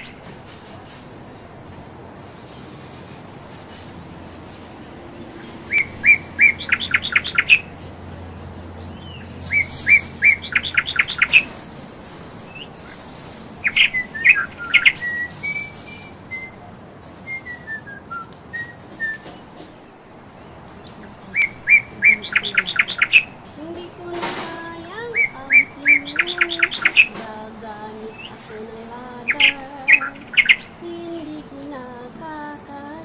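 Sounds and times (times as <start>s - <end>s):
bird singing: 0.0s - 0.2s, 5.4s - 7.8s, 8.7s - 11.6s, 13.6s - 16.7s, 20.8s - 31.4s.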